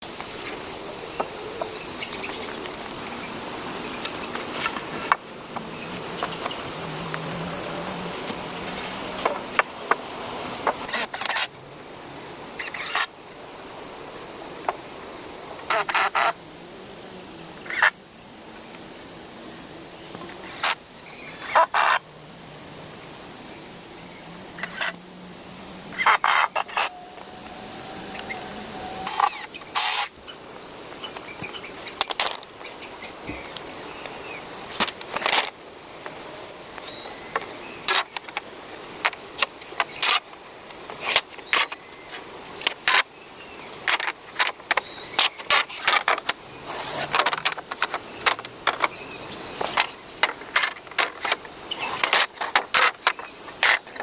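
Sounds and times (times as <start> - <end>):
steady outdoor hiss: 0.0 - 54.0
faint bird chirps: 26.2 - 30.4, 32.6 - 34.5.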